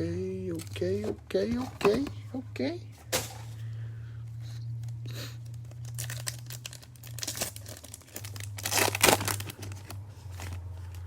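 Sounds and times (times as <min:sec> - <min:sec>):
foil wrapper tearing and crinkling: 0:05.4 - 0:11.0.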